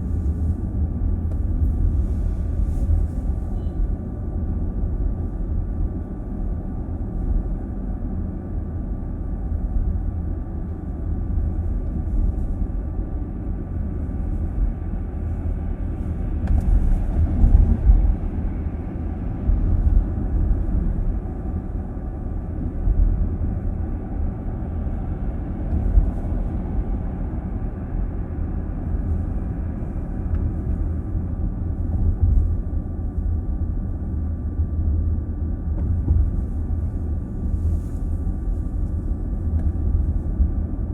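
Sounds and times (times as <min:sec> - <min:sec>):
car interior road rumble: 0:00.0 - 0:40.9.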